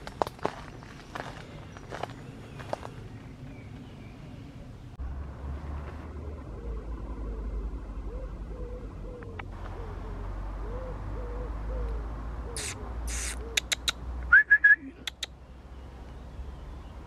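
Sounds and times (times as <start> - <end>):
bird cooing: 6.1 - 15.3
short high squeaks: 12.6 - 13.4.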